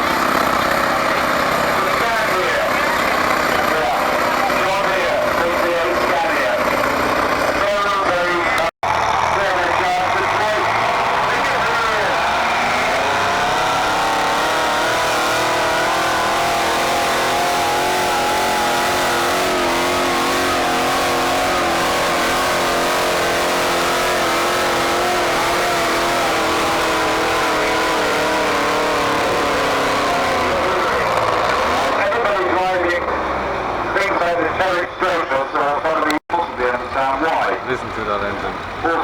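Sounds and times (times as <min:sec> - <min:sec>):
tractor engine revving high: 0:00.0 - 0:35.7.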